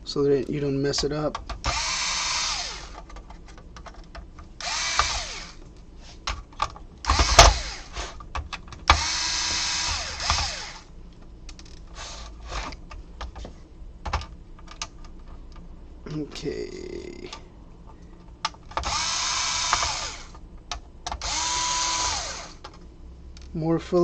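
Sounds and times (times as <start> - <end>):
electric screwdriver whirring: 1.7 - 3.0, 4.6 - 5.6, 7.1 - 8.2, 8.9 - 10.9, 18.8 - 20.3, 21.2 - 22.6.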